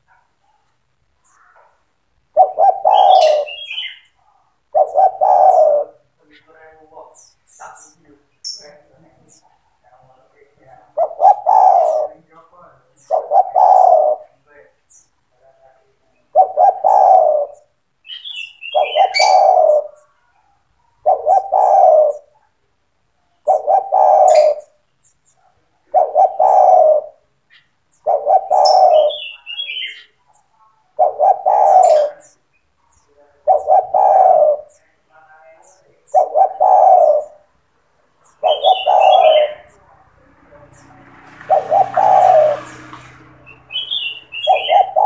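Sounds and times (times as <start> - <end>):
dove cooing: 1.3 - 6.5, 10.6 - 12.3, 13.0 - 14.4, 16.1 - 22.6, 23.3 - 32.5, 33.3 - 37.6, 38.2 - 45.0.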